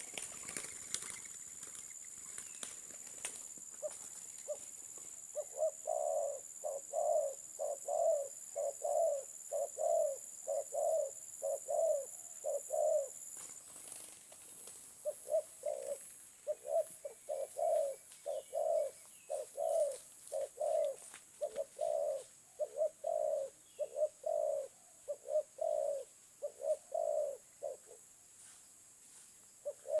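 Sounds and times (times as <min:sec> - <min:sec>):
dove cooing: 0:03.7 - 0:13.2, 0:15.0 - 0:28.1, 0:29.6 - 0:30.0.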